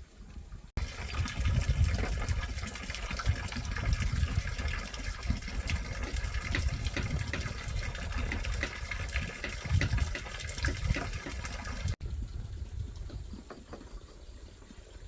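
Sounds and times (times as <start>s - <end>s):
water rushing and splashing: 0.8s - 12.0s.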